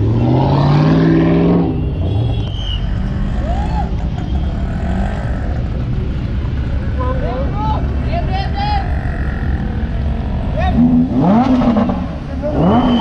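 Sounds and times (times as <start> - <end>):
street traffic noise: 0.0 - 13.0
car engine revving: 7.8 - 13.0.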